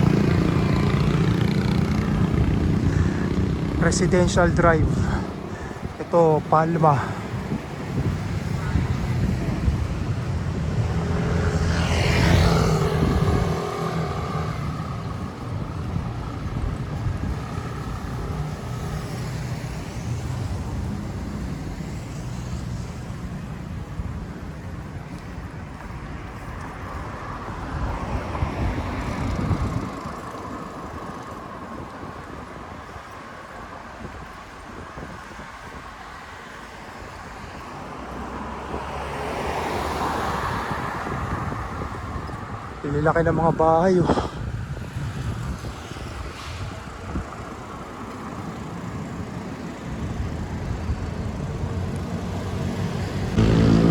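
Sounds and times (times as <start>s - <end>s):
car passing close: 0.0s - 23.5s, 37.1s - 43.0s, 44.2s - 53.9s
vehicle passing: 0.0s - 32.1s, 37.0s - 53.9s
wind and road noise rumble: 0.0s - 53.9s.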